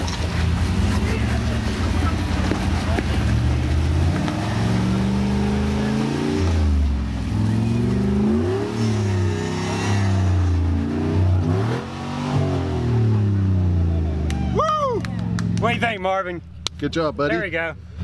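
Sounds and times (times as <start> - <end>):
engine revving under load: 0.0 - 14.4.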